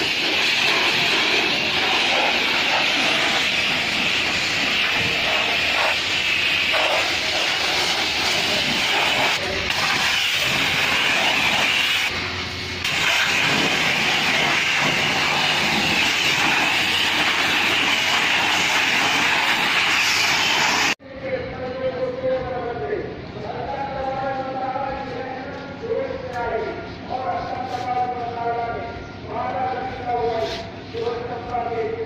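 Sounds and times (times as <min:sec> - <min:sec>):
pressure washer spray hissing: 0:00.0 - 0:21.0.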